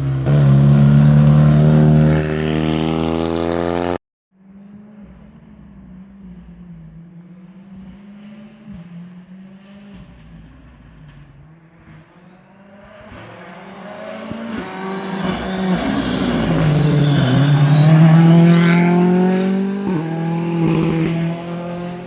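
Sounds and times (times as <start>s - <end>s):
rally car engine revving past: 0.0s - 4.0s, 11.8s - 22.0s.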